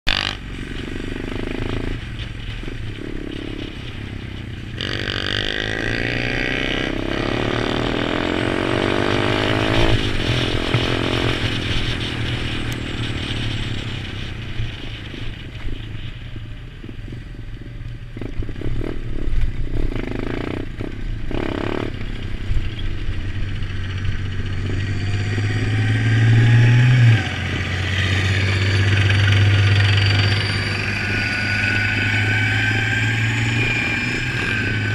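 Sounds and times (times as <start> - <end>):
motorbike engine revving: 0.1 - 15.4, 18.1 - 34.9
clatter and scraping over rough ground: 9.4 - 31.3.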